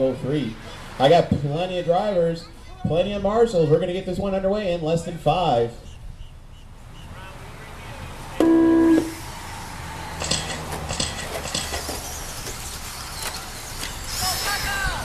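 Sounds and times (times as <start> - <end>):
electronic start tone: 8.4 - 9.2
electric rc trucks motors whining: 9.0 - 15.0.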